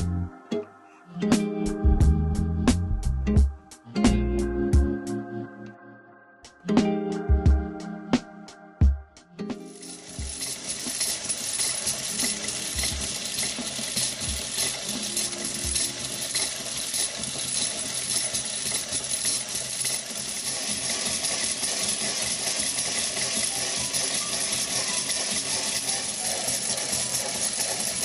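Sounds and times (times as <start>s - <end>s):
fine metallic rattling of gears: 9.8s - 28.0s.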